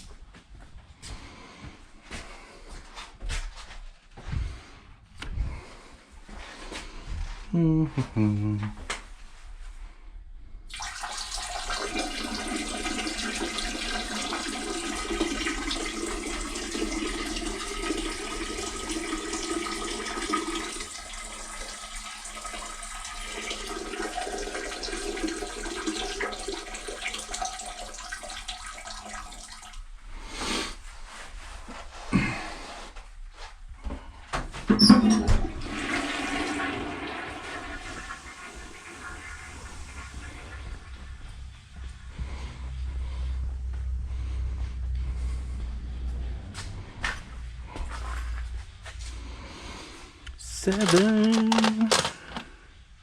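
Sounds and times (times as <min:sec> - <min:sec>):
urine splashing into toilet bowl: 0:10.7 - 0:29.8, 0:35.2 - 0:41.2.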